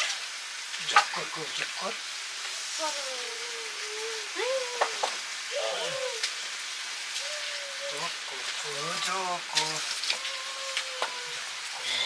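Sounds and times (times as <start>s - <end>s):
food sizzling in a wok: 0.0s - 12.0s
wavering high-pitched calls: 7.2s - 8.2s.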